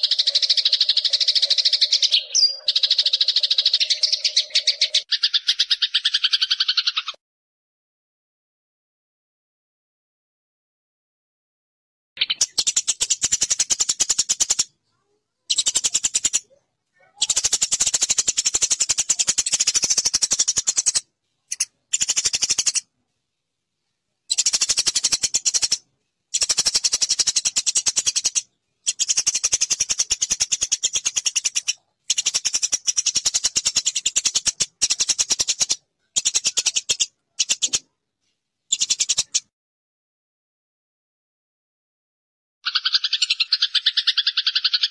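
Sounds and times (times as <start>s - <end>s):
sparrows chirping: 0.0s - 7.2s, 12.2s - 22.9s, 23.8s - 38.0s, 38.7s - 39.5s, 42.6s - 44.9s.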